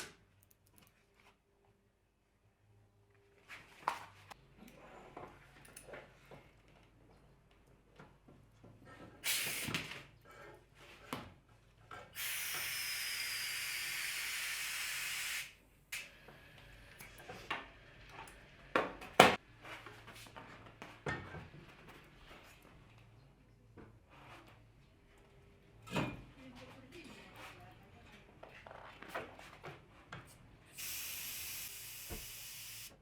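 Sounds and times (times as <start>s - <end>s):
hiss of escaping air: 9.2s - 9.8s, 12.2s - 15.6s, 30.8s - 32.9s.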